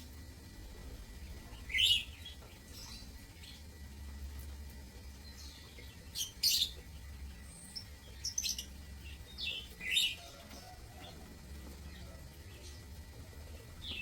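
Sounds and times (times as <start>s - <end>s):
steady low hum: 0.0s - 14.0s
lovebirds chirping: 1.2s - 3.7s, 5.1s - 11.1s.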